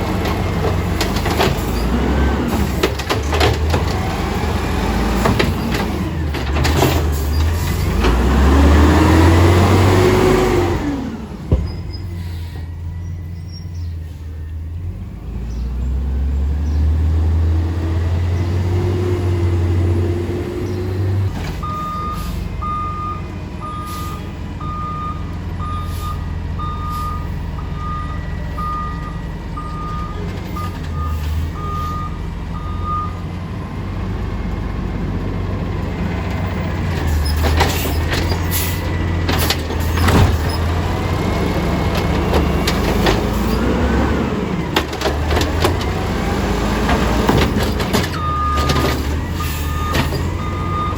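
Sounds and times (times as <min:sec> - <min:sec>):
garbage truck engine running: 0:00.0 - 0:50.9
clanks and knocks: 0:02.6 - 0:04.0, 0:37.0 - 0:40.8, 0:41.9 - 0:43.5, 0:44.7 - 0:46.0, 0:46.8 - 0:49.2
backup alarm beeping: 0:21.6 - 0:33.2, 0:48.2 - 0:48.8, 0:49.4 - 0:50.9.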